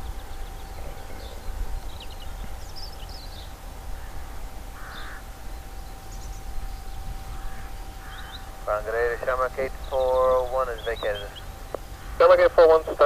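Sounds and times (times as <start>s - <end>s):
birds chirping: 0.0s - 13.0s
faint steady tone: 0.0s - 13.0s
steady low rumble: 0.0s - 13.0s
crow-like caws: 3.8s - 5.5s, 7.2s - 8.6s, 11.6s - 12.3s.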